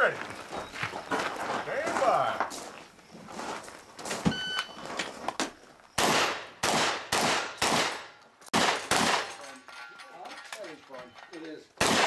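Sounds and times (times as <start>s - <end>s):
shotgun shots: 6.0s - 9.4s, 11.8s - 12.0s.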